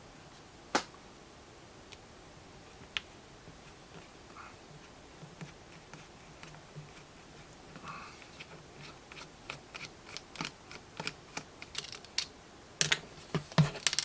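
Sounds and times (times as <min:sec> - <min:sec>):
screwdriver clicking on plastic: 0:09.2 - 0:13.0.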